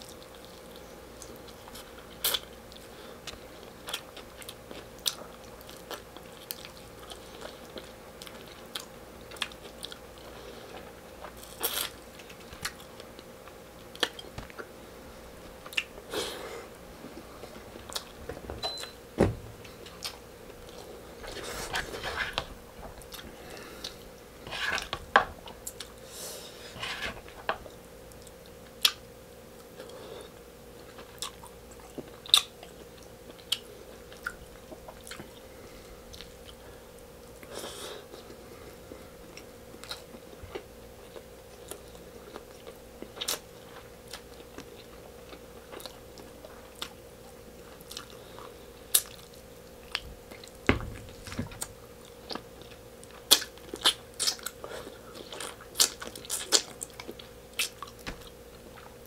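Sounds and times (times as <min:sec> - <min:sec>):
chewing and biting food: 0:00.0 - 0:14.8, 0:30.8 - 0:35.5, 0:39.3 - 0:59.0
faint steady hum: 0:00.0 - 0:59.0.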